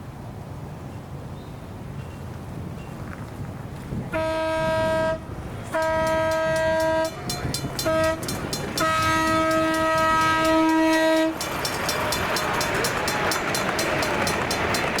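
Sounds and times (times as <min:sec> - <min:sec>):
locomotive horn blasts: 0:04.1 - 0:11.4
crossing bell ringing: 0:05.8 - 0:15.0.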